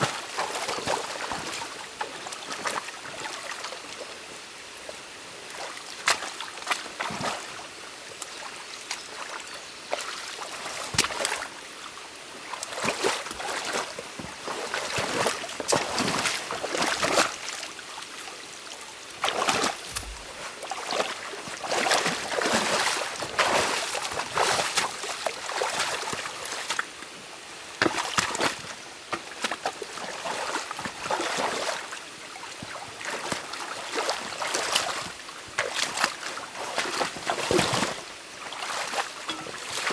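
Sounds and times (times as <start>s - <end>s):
stream water running: 0.0s - 39.9s
water splashing and sloshing: 19.2s - 26.7s, 33.0s - 39.9s
sticks knocking: 19.8s - 20.4s, 39.3s - 39.9s.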